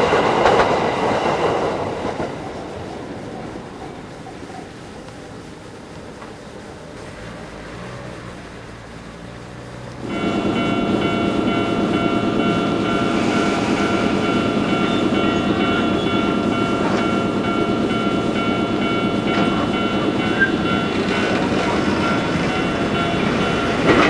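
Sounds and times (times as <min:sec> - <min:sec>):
train wheels rumbling on rails: 0:00.0 - 0:24.0
level crossing warning bell: 0:08.3 - 0:24.0.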